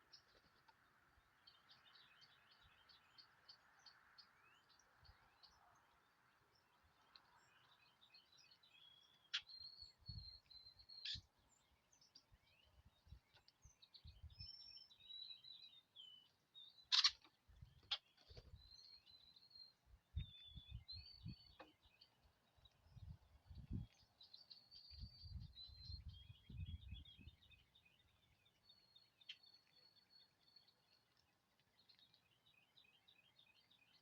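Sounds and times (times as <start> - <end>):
songbirds chirping: 0.0 - 34.0.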